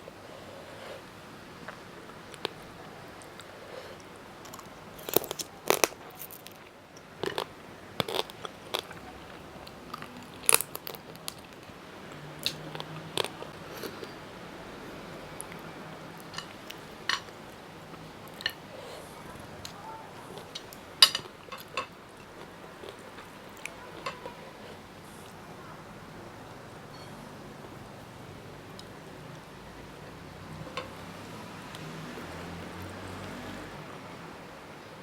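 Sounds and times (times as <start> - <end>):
crunchy chewing: 3.2 - 14.2.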